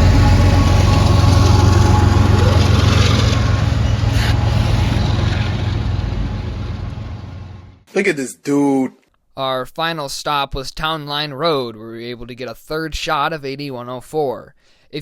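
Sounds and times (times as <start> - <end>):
diesel locomotives under load: 0.0 - 7.9.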